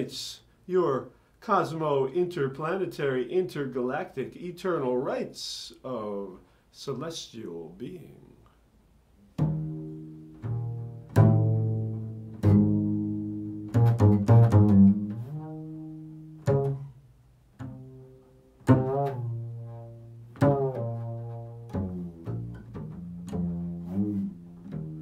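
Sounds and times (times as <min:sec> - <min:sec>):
low plucked string notes: 0:09.4 - 0:17.0, 0:17.6 - 0:25.0.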